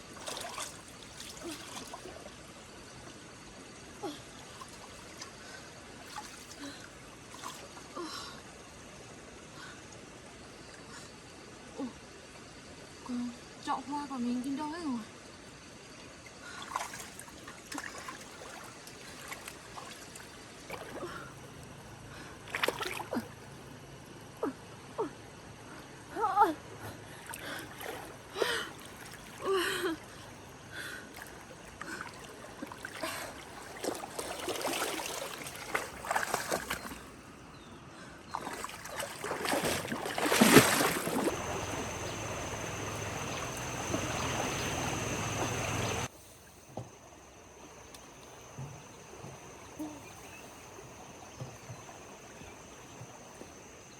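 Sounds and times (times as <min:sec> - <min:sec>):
floodwater splashing: 0:00.0 - 0:02.7, 0:04.0 - 0:07.8, 0:16.6 - 0:21.7, 0:22.4 - 0:23.5, 0:27.1 - 0:37.3, 0:38.3 - 0:46.1.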